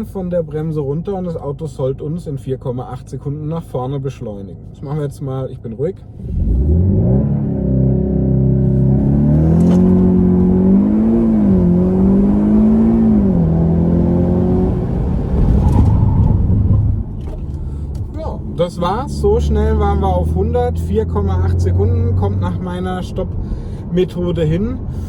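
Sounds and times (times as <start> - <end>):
car engine revving hard: 6.2 - 16.8.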